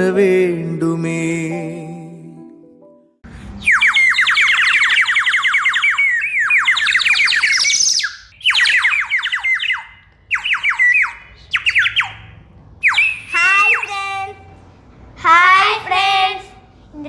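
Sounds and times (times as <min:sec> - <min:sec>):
toy bird chirping: 0:03.6 - 0:14.5.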